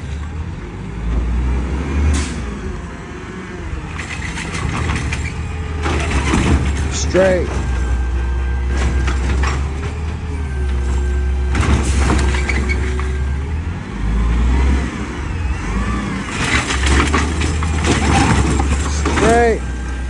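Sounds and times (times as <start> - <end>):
diesel engine rumbling: 0.0 - 20.0
squealing glides: 10.5 - 13.4.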